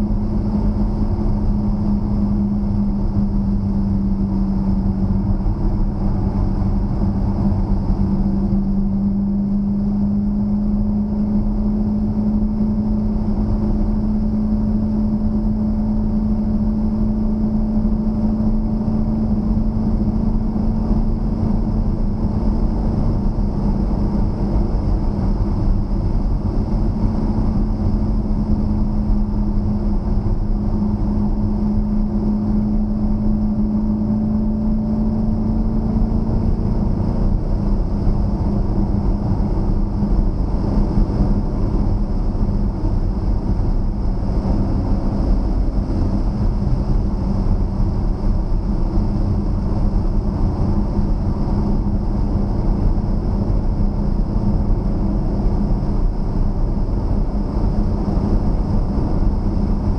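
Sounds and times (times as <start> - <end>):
car engine droning at cruise: 0.0 - 59.9.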